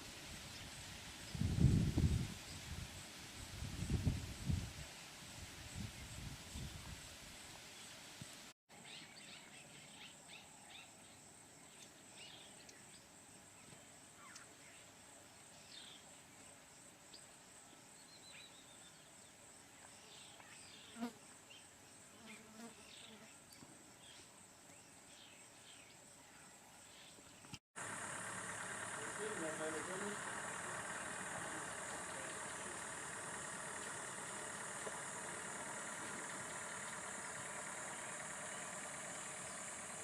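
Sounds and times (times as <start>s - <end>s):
high-pitched insect drone: 27.8s - 40.0s.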